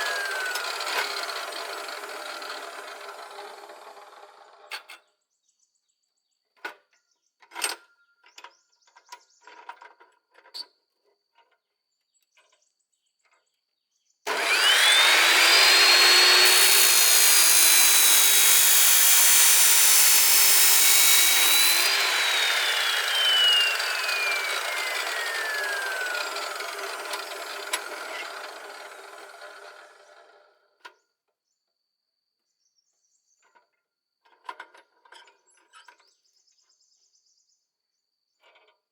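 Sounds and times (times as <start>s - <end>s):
electric power tool whining: 0.0s - 4.7s, 14.3s - 30.5s.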